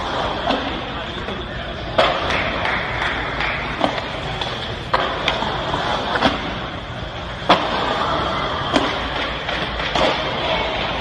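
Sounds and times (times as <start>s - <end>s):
skateboard wheels rolling on concrete: 0.0s - 11.0s.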